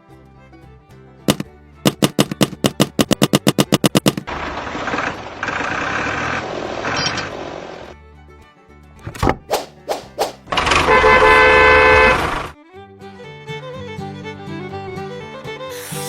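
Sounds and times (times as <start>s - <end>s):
background music: 0.0s - 4.2s, 7.9s - 16.0s
rapid sharp clicks: 1.3s - 4.3s
steady rasping noise: 1.3s - 4.4s.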